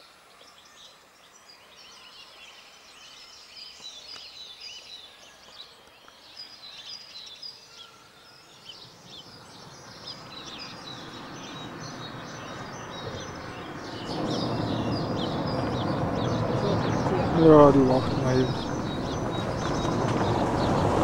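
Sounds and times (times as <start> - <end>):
small birds chirping: 0.0 - 21.0
low rushing noise: 10.9 - 21.0.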